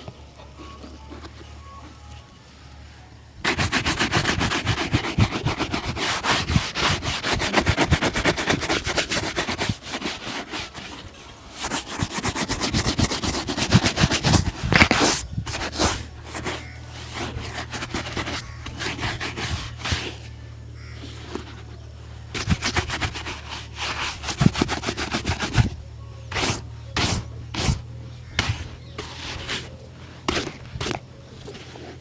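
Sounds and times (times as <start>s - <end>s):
steady low hum: 0.0s - 32.0s
shoe brush scrubbing leather: 3.4s - 21.6s, 22.3s - 27.8s, 28.4s - 29.7s, 30.3s - 32.0s.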